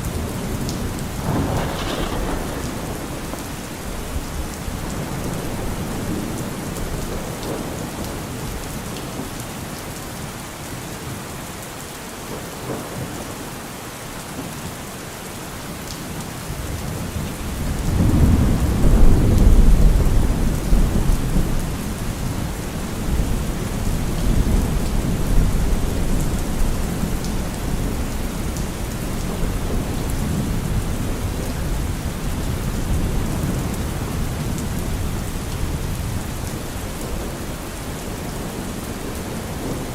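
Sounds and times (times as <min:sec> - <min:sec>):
heavy rain falling: 0:00.0 - 0:39.9
thunder rumbling: 0:00.1 - 0:08.6, 0:17.4 - 0:39.9.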